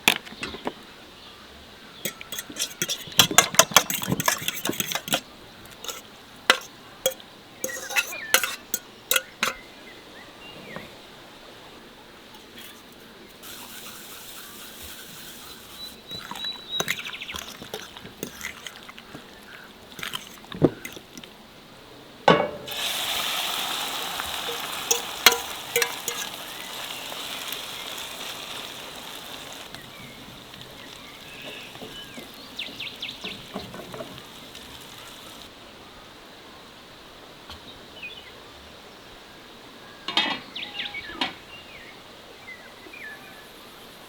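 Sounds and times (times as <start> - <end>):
utensils knocking and clinking: 2.1 - 9.6, 16.1 - 19.3, 19.9 - 21.2, 22.3 - 22.9, 24.2 - 26.8, 29.7 - 35.4
food sizzling in hot pan: 13.4 - 18.7, 22.4 - 35.5.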